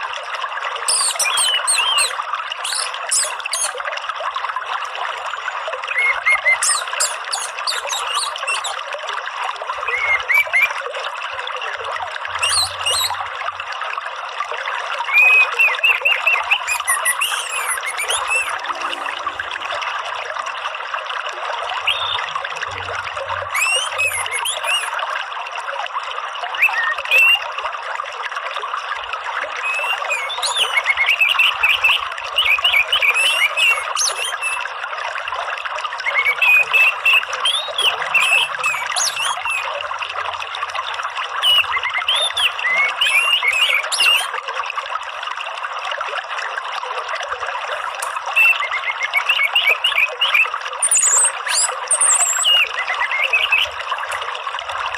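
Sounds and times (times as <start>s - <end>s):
water trickling: 0.0s - 54.9s
high chirping calls: 0.8s - 3.8s, 5.8s - 8.8s, 9.8s - 10.8s, 12.4s - 13.2s, 15.1s - 19.2s, 21.8s - 22.3s, 23.4s - 24.9s, 29.6s - 34.6s, 36.1s - 39.7s, 41.4s - 44.3s, 47.9s - 53.8s.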